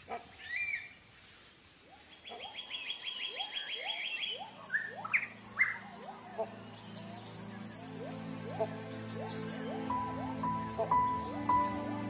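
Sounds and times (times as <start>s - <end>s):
upward-sweeping bird calls: 0.1s - 1.3s, 1.9s - 12.0s
bird trilling high notes: 3.8s - 11.8s.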